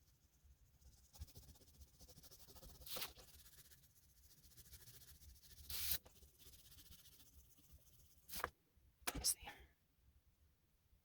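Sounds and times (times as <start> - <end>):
oil pastel scratching on paper: 0.0 - 8.5.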